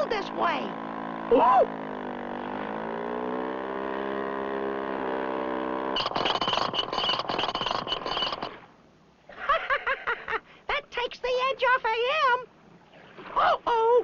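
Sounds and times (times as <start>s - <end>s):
rapid rattling sound effect: 6.0s - 8.6s.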